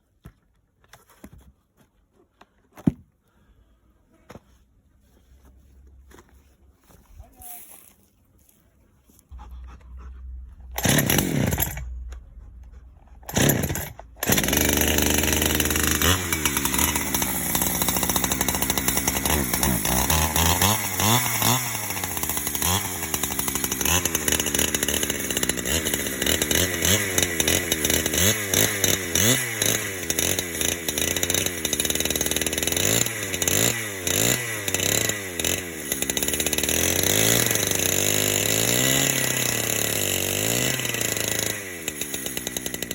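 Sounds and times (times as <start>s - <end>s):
chainsaw cutting log: 9.3s - 42.9s.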